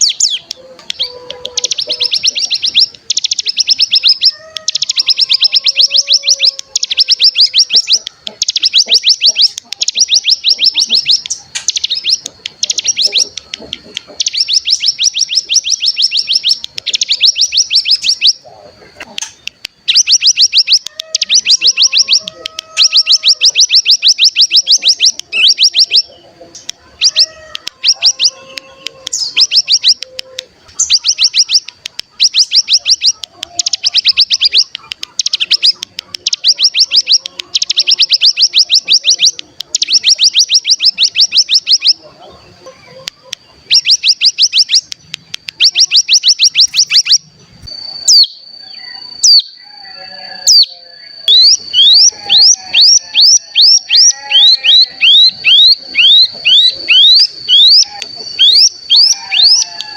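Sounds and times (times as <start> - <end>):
bird rattling trill: 0.0 - 18.4
faint low chirps: 0.0 - 59.9.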